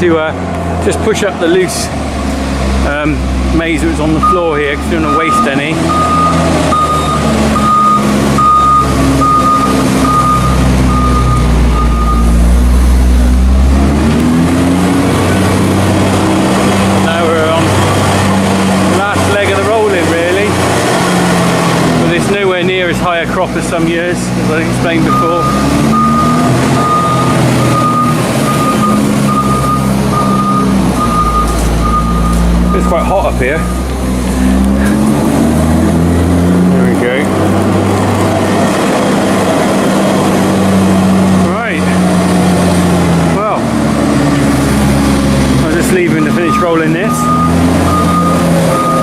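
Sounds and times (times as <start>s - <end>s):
diesel engine running: 0.0s - 49.0s
reversing alarm beeping: 4.2s - 12.8s, 25.0s - 33.9s, 46.1s - 49.0s.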